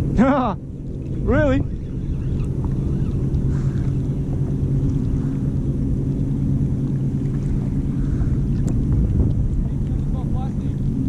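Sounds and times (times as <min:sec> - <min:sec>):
motor droning: 0:00.0 - 0:11.0.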